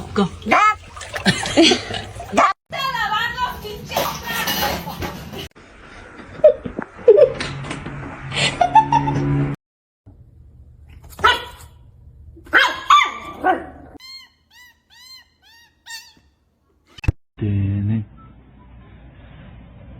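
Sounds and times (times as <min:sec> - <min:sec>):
dog barking and yelping: 0:12.5 - 0:13.9.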